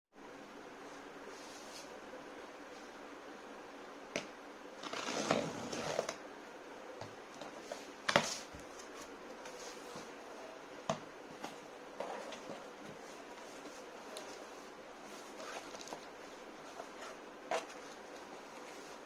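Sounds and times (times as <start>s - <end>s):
cardboard packaging rustling: 11.4s - 19.0s.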